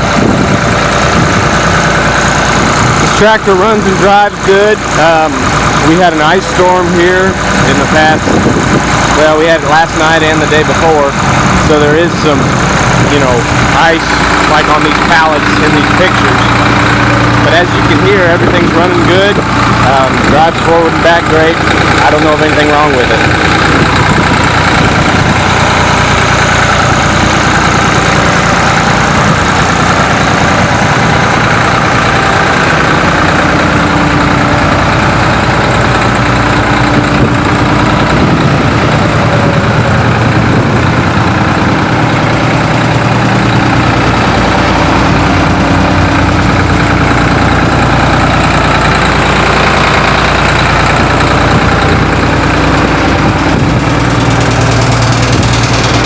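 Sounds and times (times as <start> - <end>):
deep low rumble: 0.0 - 3.8, 10.5 - 56.0
tractor engine running: 0.0 - 56.0.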